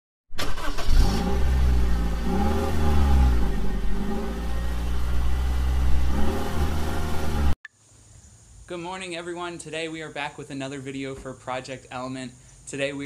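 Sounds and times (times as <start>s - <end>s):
car engine idling: 0.4s - 7.5s
car engine revving: 0.4s - 7.6s.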